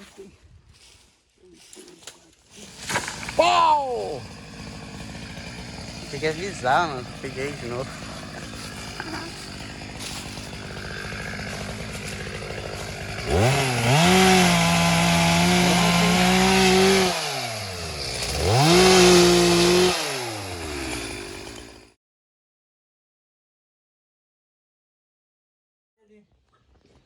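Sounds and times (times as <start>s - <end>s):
chainsaw engine revving: 2.5s - 22.0s.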